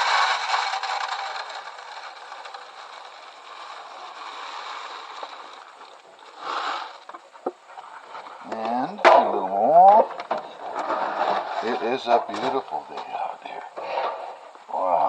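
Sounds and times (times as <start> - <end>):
bird seed pouring into feeder: 0.0 - 7.2.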